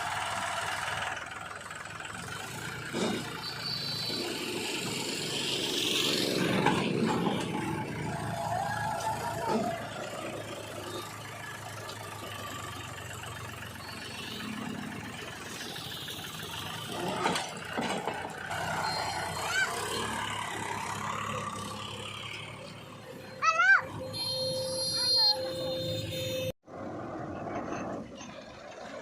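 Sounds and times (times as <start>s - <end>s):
heavy machinery diesel engine: 0.0s - 29.0s
knocks and clatter: 16.8s - 18.5s.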